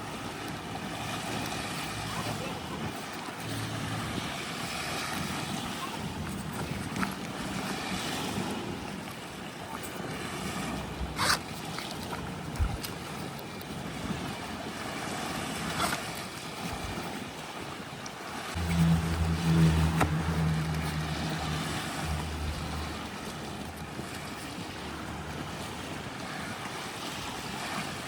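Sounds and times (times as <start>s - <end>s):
surf: 0.0s - 28.0s
wind: 0.0s - 28.0s
low motor hum: 3.3s - 7.8s, 18.6s - 26.0s.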